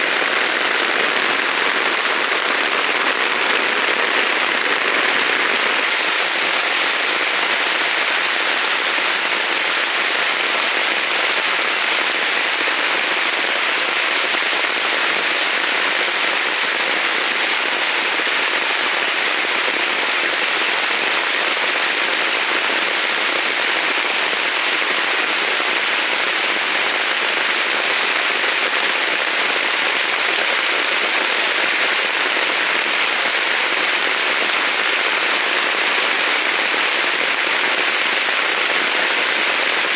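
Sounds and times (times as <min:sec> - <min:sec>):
heavy rain on vegetation: 0:00.0 - 0:39.9.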